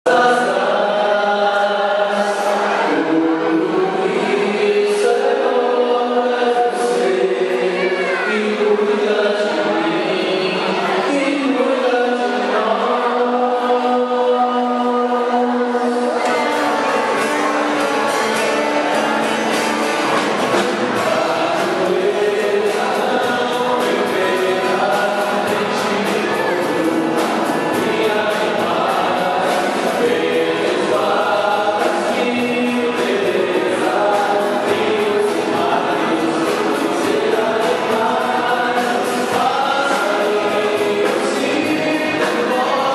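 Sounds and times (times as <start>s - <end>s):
choir singing: 0.1s - 42.9s
instrumental backing: 15.7s - 42.9s
steady percussive beat: 16.2s - 42.9s.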